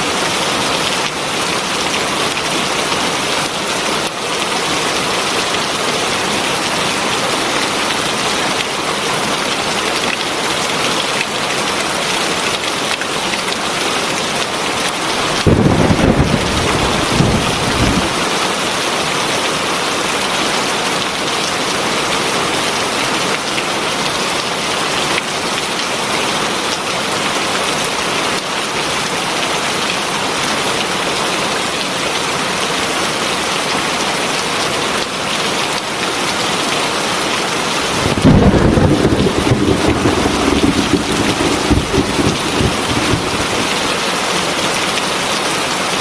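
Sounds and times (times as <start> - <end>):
heavy rain hissing: 15.2 - 18.5, 37.7 - 44.3
low rumble: 37.9 - 44.0.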